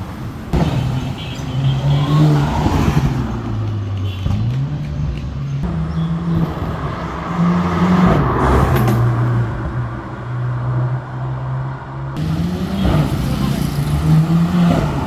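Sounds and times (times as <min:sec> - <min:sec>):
road noise: 0:00.0 - 0:15.0
car engine running: 0:12.2 - 0:15.0.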